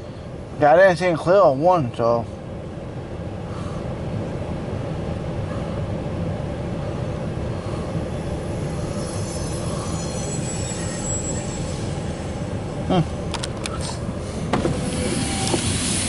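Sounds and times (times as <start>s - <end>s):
train cars rumbling on rails: 0.0s - 16.0s
faint high wheel squeal: 7.5s - 16.0s.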